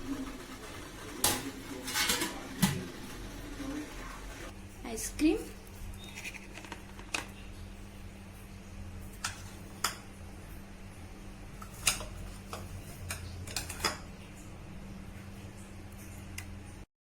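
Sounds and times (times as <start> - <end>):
utensils clinking against dishes: 1.2 - 2.8, 11.6 - 14.0.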